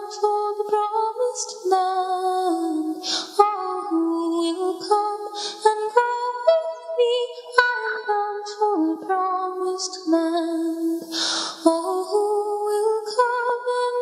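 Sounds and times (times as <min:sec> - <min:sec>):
woman breathing in: 0:03.0 - 0:03.4, 0:05.3 - 0:05.6, 0:11.0 - 0:11.6.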